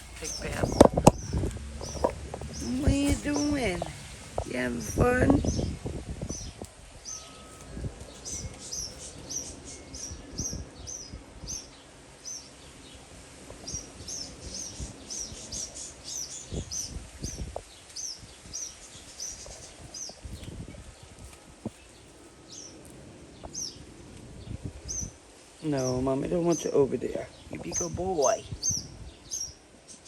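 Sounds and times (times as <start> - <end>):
low thumps: 0.0 - 6.6
small bird chirping: 0.0 - 12.6, 24.8 - 30.0.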